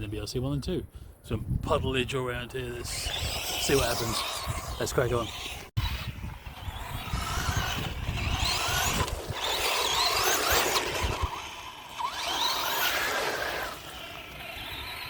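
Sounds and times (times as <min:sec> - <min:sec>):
electric motors whining: 0:02.6 - 0:15.0
low gusty rumble: 0:05.5 - 0:11.8.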